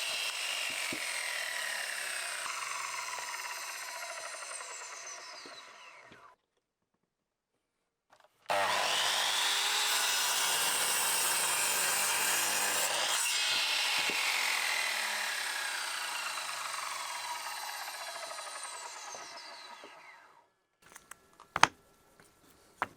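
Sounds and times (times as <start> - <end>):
power saw cutting wood: 0.0 - 6.4, 8.5 - 21.7.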